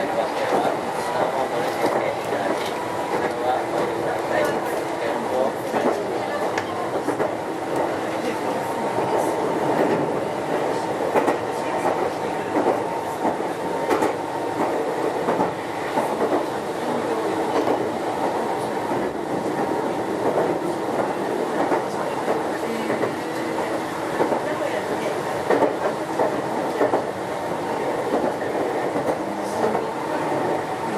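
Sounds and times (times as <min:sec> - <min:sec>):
electric train rumbling: 0:00.0 - 0:30.9
wheels clacking on track: 0:05.6 - 0:16.6, 0:17.5 - 0:30.9.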